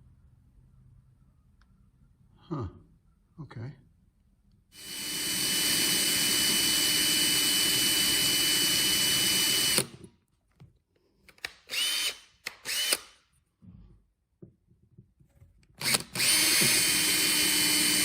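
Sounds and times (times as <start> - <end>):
power drill whining: 4.8 - 10.1, 11.7 - 13.1, 15.8 - 18.0.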